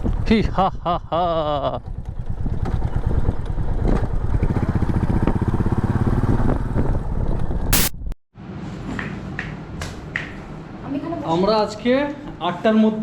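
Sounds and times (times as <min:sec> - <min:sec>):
motorcycle engine running: 0:00.0 - 0:07.9
short loud noise burst: 0:07.7 - 0:08.0.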